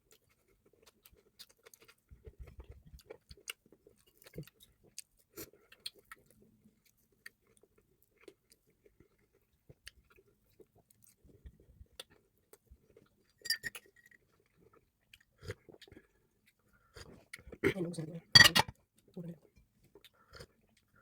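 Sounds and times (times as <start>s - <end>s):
person chewing food: 0.0s - 17.6s, 19.7s - 21.0s.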